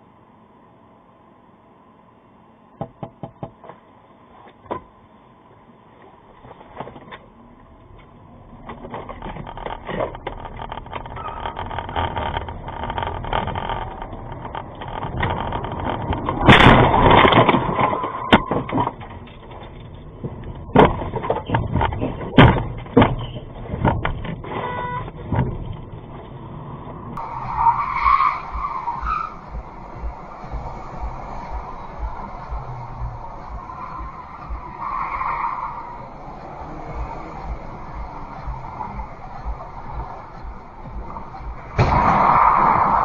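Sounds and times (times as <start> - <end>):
road and engine noise: 0.0 - 43.0
car crash crunching and scraping: 8.0 - 43.0
sharp knocks and bangs: 40.9 - 43.0.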